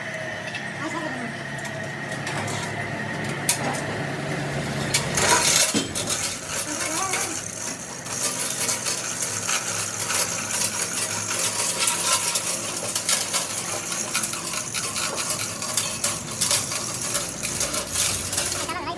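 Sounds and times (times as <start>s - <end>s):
metal tools clinking: 5.2s - 18.8s.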